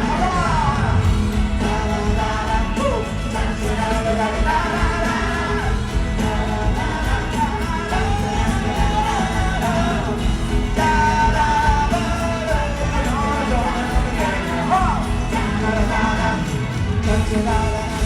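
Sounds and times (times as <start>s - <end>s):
band playing live: 0.0s - 18.0s
crowd shouting: 0.0s - 18.0s.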